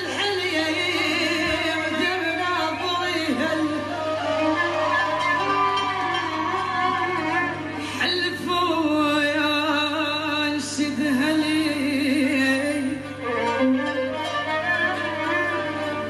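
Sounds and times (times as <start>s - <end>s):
person singing with vibrato: 0.0s - 4.8s, 7.4s - 13.5s
held accompaniment: 0.0s - 8.4s, 12.6s - 16.0s.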